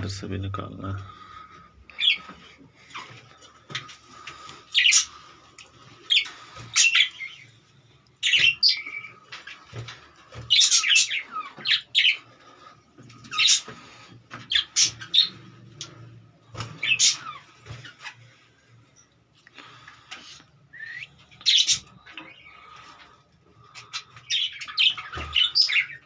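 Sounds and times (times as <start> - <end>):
budgerigars chirping: 1.9 - 2.3, 4.4 - 5.2, 6.1 - 7.6, 8.2 - 9.6, 10.4 - 12.3, 13.2 - 15.9, 16.6 - 18.2, 21.3 - 23.0, 23.6 - 26.0.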